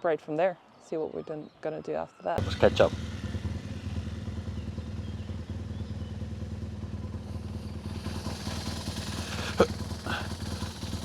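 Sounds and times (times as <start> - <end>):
motorcycle engine idling: 2.4 - 11.0
hiss: 7.9 - 11.0.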